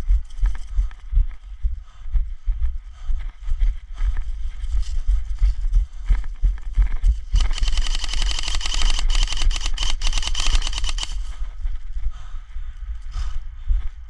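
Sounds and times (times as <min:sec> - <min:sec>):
airsoft rifle full-auto burst: 0:07.4 - 0:11.2.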